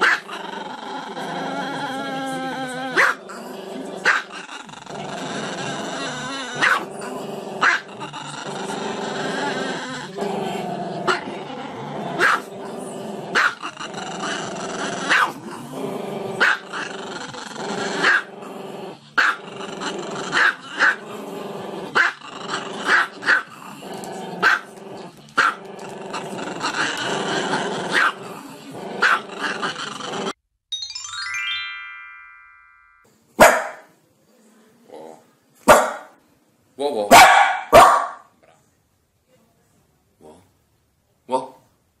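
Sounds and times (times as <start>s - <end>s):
dog yapping: 37.1s - 38.2s.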